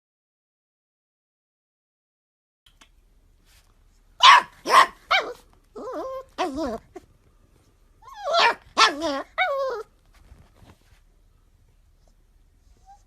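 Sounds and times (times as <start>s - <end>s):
puppy barking: 4.2s - 7.0s, 8.0s - 9.9s
puppy wavering drawn-out calls: 4.2s - 7.0s, 8.0s - 9.9s.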